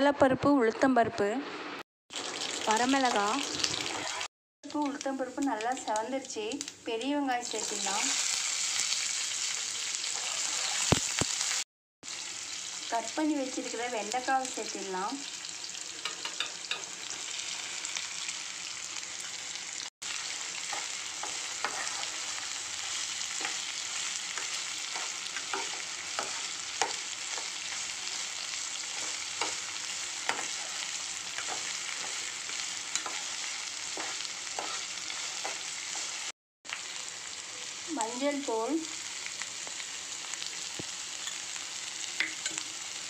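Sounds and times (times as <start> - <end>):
okra sizzling in hot oil: 2.1 - 43.0
metal spoon scraping a pan: 10.1 - 11.0, 20.7 - 22.6, 23.2 - 36.1, 41.2 - 41.5.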